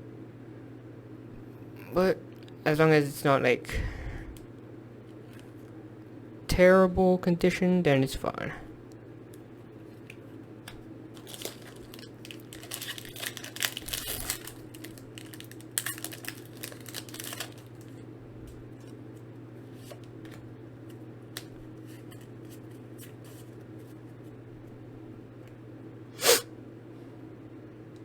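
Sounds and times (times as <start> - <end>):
steady low hum: 0.0 - 28.0
foil wrapper tearing and crinkling: 11.1 - 17.9.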